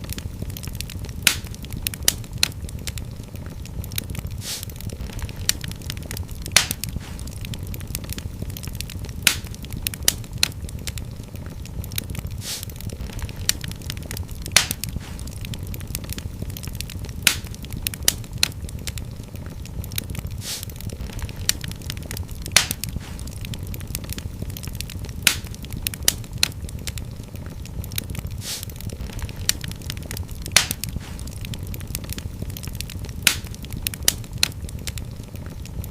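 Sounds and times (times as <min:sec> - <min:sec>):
fire crackling in a fireplace: 0:00.0 - 0:35.9
fire hissing: 0:00.0 - 0:35.9
low rumble of flames: 0:00.0 - 0:35.9
short hiss: 0:04.4 - 0:04.7, 0:12.4 - 0:12.7, 0:20.4 - 0:20.7, 0:28.4 - 0:28.7.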